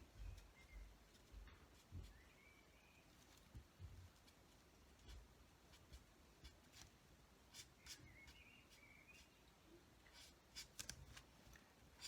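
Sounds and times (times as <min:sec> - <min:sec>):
marker scratching on card: 0:07.5 - 0:09.4, 0:10.1 - 0:11.0.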